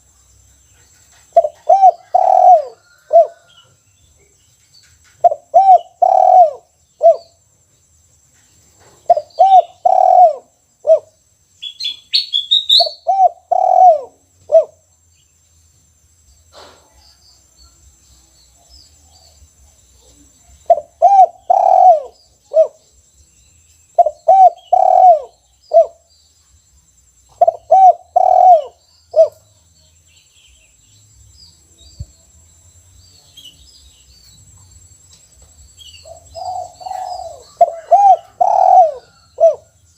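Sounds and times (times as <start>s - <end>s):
dove cooing: 1.4s - 3.6s, 5.2s - 7.3s, 9.0s - 11.2s, 12.7s - 14.8s, 20.7s - 22.9s, 24.0s - 26.0s, 27.4s - 29.5s, 36.0s - 39.8s
small bird chirp: 8.3s - 39.9s.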